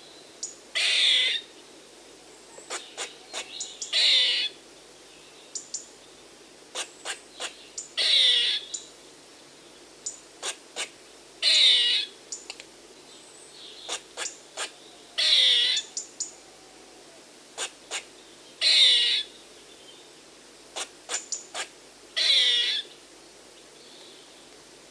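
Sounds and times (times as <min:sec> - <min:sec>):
squirrel alarm calls: 0:00.8 - 0:01.5, 0:02.6 - 0:04.6, 0:06.7 - 0:08.9, 0:10.0 - 0:12.4, 0:13.8 - 0:16.3, 0:17.6 - 0:19.3, 0:20.8 - 0:22.9.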